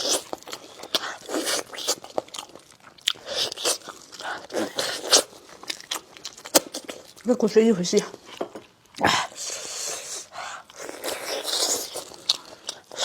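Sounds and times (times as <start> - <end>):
chewing and biting meat: 0.0 - 7.2, 10.5 - 13.0.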